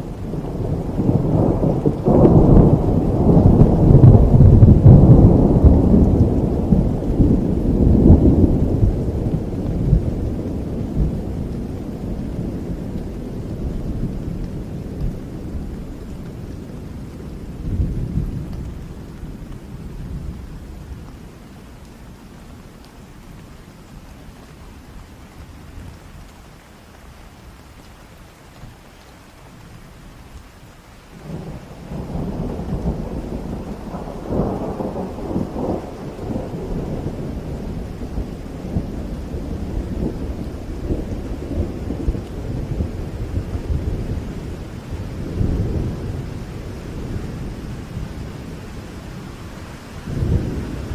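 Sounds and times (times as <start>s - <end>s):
rolling thunder: 0.0s - 21.0s, 31.2s - 50.9s
steady rain: 0.0s - 50.9s.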